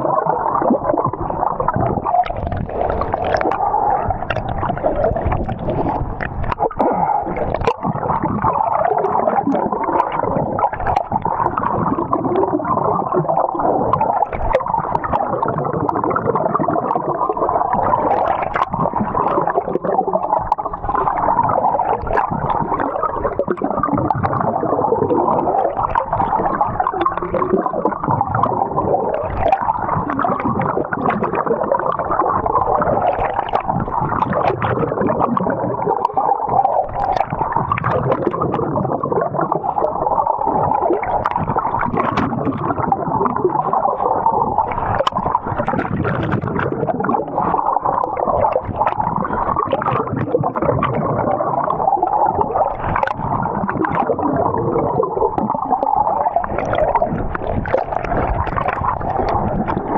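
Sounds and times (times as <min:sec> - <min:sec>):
water gurgling and churning: 0:00.0 - 0:59.9.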